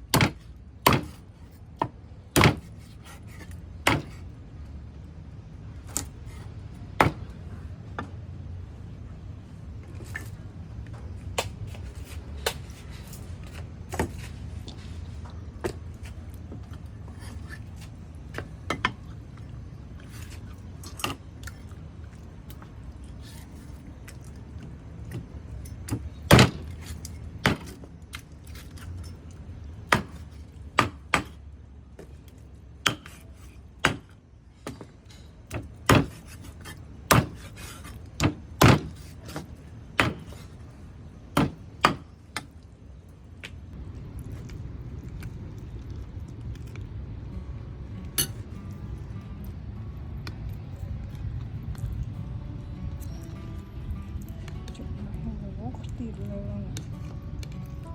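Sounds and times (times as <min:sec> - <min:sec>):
knife chopping on wooden board: 0:00.1 - 0:01.2, 0:02.4 - 0:04.2, 0:07.0 - 0:07.3, 0:29.9 - 0:30.2, 0:35.6 - 0:40.4.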